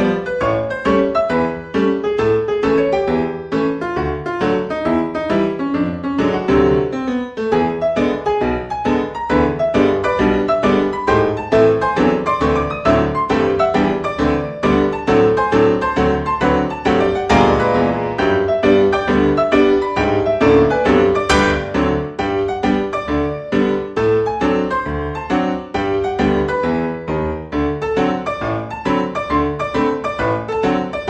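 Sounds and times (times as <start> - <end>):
piano music: 0.0 - 31.0.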